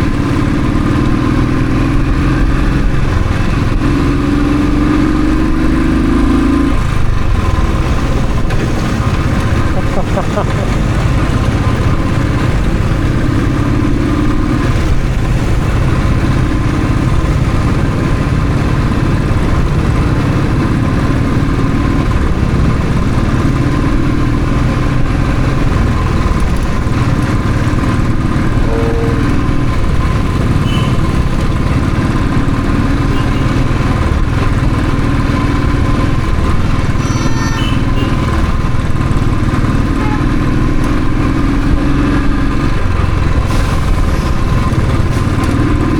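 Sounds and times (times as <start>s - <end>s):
motorcycle engine running: 0.0s - 45.9s
short high-pitched sound: 28.6s - 29.5s.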